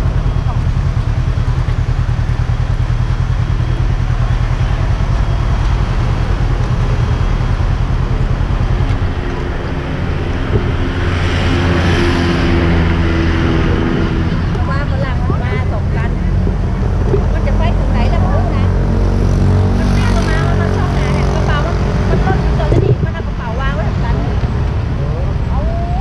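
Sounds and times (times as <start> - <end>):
motorcycle engine idling: 0.0 - 11.8
passing vehicle engine drone: 0.0 - 26.0.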